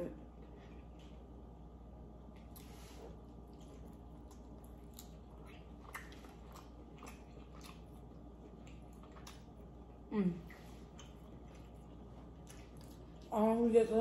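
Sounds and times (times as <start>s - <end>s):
mouth chewing wet smacks: 3.4s - 13.3s.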